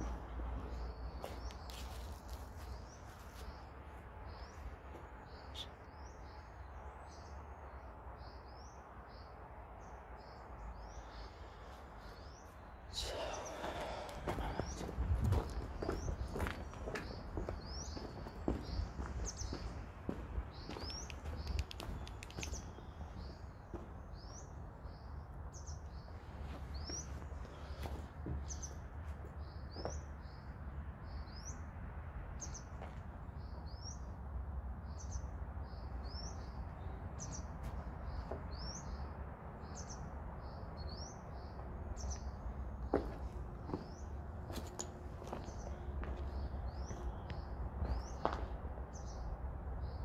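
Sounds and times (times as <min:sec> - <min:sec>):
small bird chirping: 0:05.3 - 0:06.3, 0:20.5 - 0:26.1
sharp clicks: 0:20.9 - 0:22.6.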